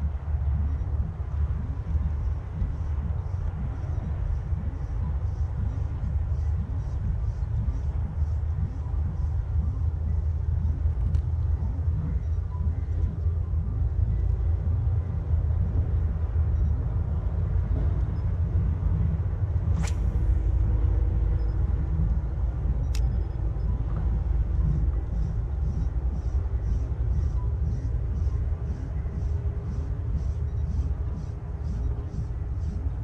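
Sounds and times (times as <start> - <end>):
sharp clicks: 22.8 - 23.3.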